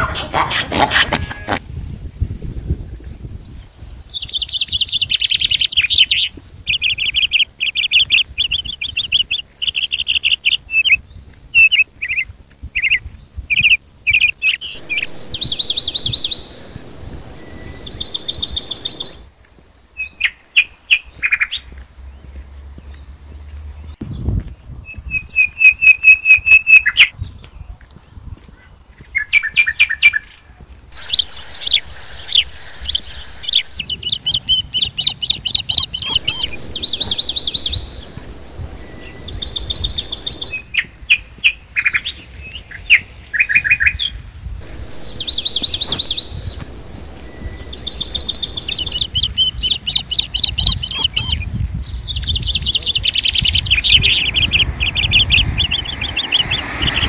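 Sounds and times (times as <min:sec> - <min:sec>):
songbirds trilling and chirping: 0:03.4 - 0:19.3, 0:19.9 - 0:57.0
low steady rumble: 0:14.1 - 0:19.4, 0:30.9 - 0:40.7, 0:44.5 - 0:51.2.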